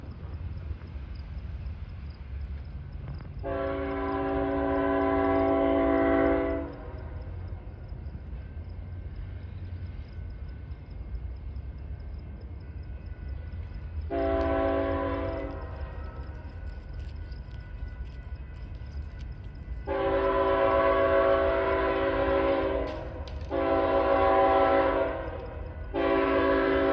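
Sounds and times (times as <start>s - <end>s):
locomotive air horn blasts: 3.4s - 6.9s, 14.1s - 15.7s, 19.9s - 26.9s
steady low rumble: 6.5s - 26.9s.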